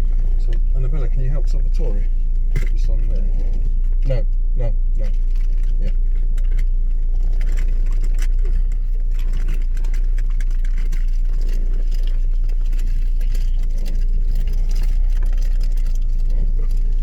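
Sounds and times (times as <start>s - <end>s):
car cabin drone: 0.0s - 17.0s
small clicks and rustles: 5.0s - 17.0s.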